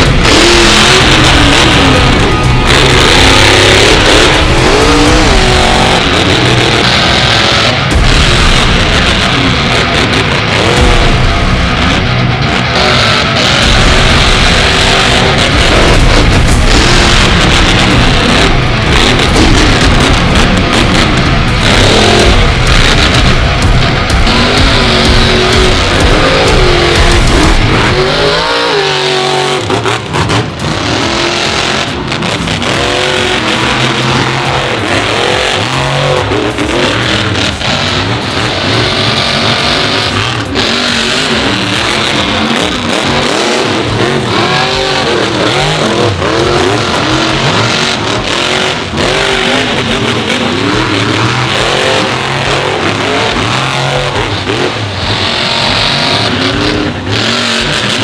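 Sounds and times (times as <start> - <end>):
continuous loud din: 0.0 - 58.0
monster truck engines revving: 0.0 - 58.0.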